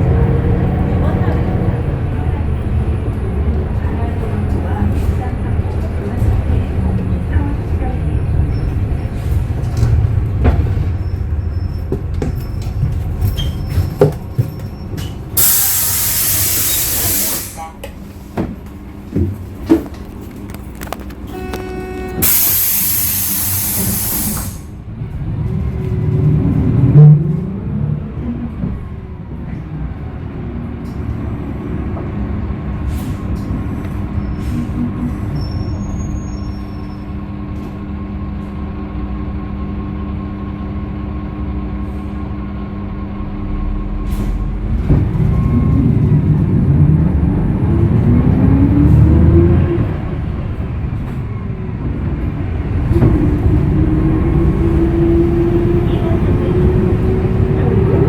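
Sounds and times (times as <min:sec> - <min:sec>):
bus engine: 0:00.0 - 0:58.0
compressed air hiss: 0:15.4 - 0:17.6, 0:22.2 - 0:24.7.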